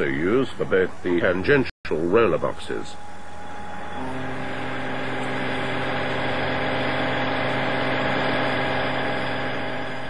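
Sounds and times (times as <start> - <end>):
lathe machine hum: 2.0 - 10.0.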